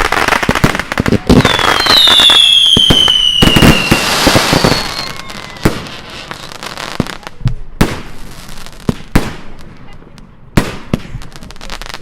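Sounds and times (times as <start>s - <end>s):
fireworks crackling: 0.0s - 12.0s
firework falling whistle: 1.4s - 6.5s
sharp firework bangs: 7.8s - 9.9s, 10.5s - 11.5s.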